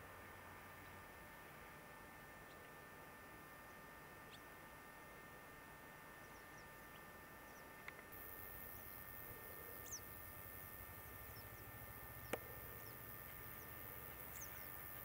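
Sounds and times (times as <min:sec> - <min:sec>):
faint small birds chirping: 0:02.1 - 0:04.6, 0:06.0 - 0:15.0.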